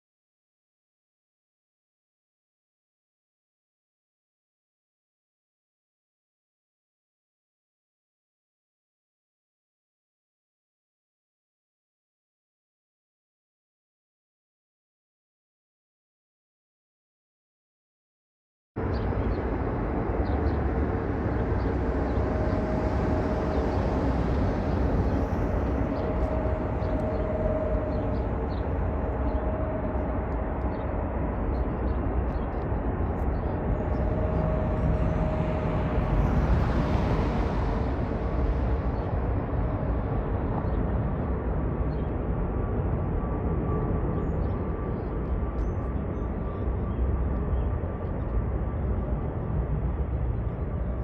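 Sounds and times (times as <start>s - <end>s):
jet airliner taking off: 19.1s - 51.0s.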